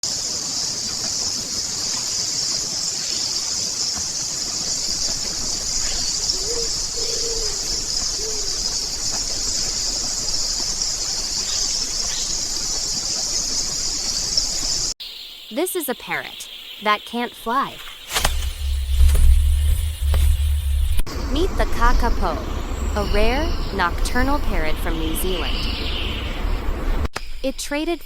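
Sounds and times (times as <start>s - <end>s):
crickets chirping: 0.0s - 28.0s
short low bird calls: 5.1s - 12.6s.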